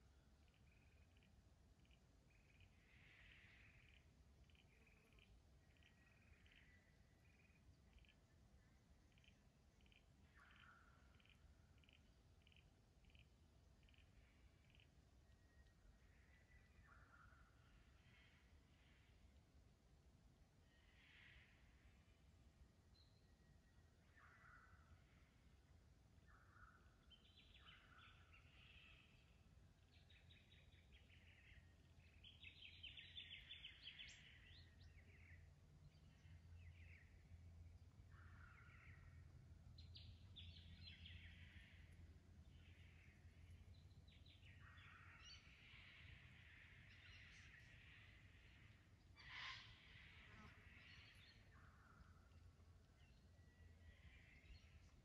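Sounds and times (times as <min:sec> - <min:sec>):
birds calling: 0:48.5 - 0:52.1.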